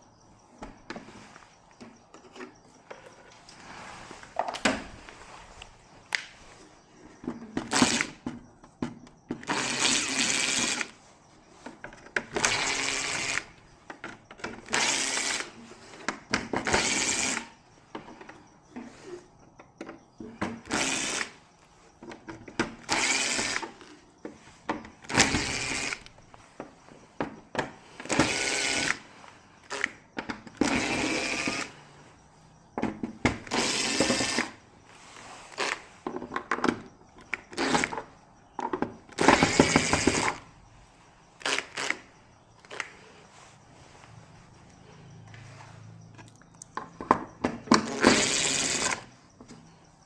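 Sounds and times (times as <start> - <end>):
power tool motor whirring: 16.7 - 17.5, 20.6 - 21.4, 22.8 - 23.8, 25.0 - 26.1, 28.0 - 29.1, 30.6 - 31.8, 33.4 - 34.6, 41.4 - 42.1, 47.8 - 49.1.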